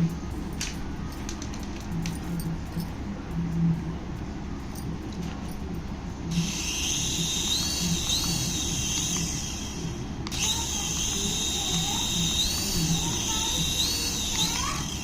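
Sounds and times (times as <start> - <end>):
toy whirring: 6.3 - 15.0.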